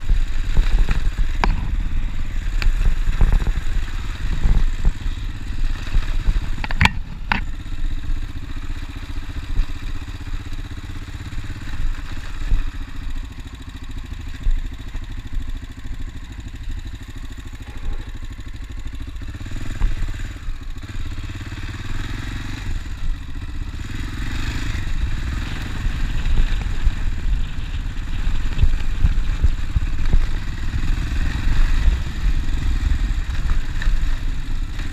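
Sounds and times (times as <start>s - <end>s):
motorcycle engine rumbling: 0.0s - 34.9s
sharp knocks and clatters: 6.2s - 7.6s.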